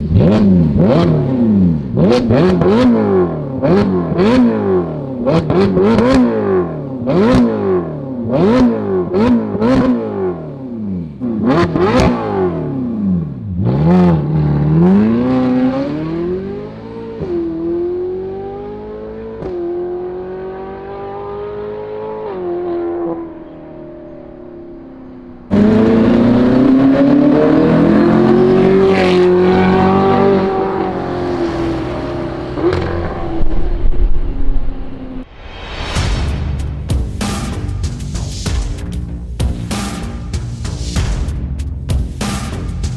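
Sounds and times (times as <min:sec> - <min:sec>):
car accelerating through gears: 0:00.0 - 0:35.3
car engine revving: 0:00.0 - 0:35.3
exhaust cracks: 0:23.0 - 0:35.3.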